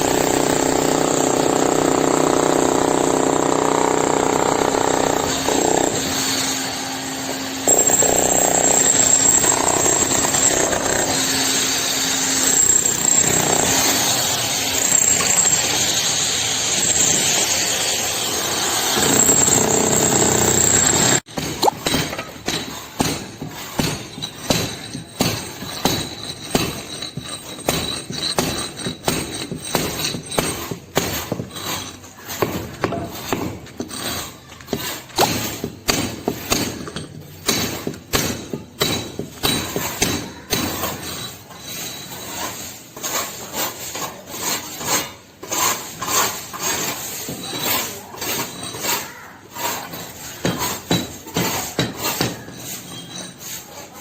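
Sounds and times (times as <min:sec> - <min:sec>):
hand tools knocking on masonry: 0:21.3 - 0:34.0.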